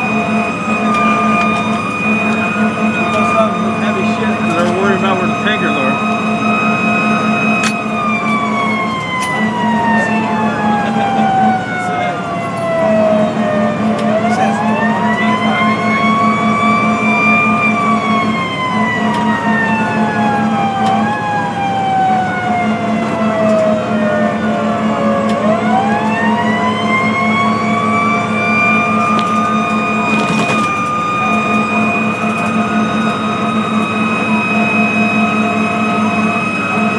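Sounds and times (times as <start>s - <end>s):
fire engine siren wailing: 0.0s - 36.9s.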